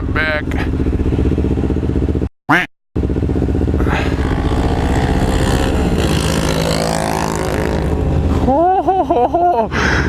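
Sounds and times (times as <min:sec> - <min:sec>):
motorcycle engine running: 0:00.0 - 0:02.3, 0:03.0 - 0:08.6
engine sweeping in pitch: 0:03.5 - 0:08.6.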